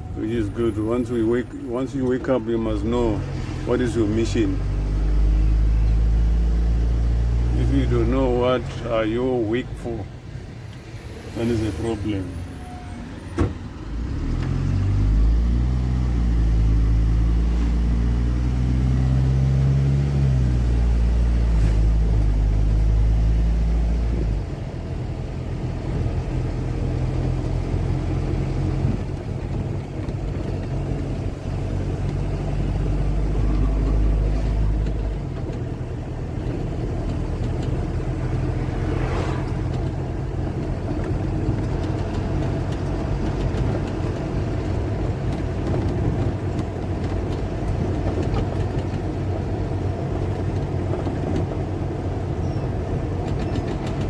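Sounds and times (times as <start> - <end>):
car engine hum and road noise: 0.0 - 54.0
deep low rumble: 32.9 - 48.5.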